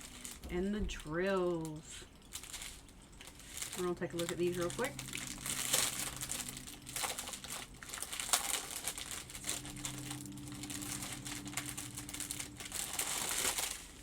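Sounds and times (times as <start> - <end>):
plastic baggies crinkling: 0.0 - 14.0
steady low hum: 2.9 - 14.0.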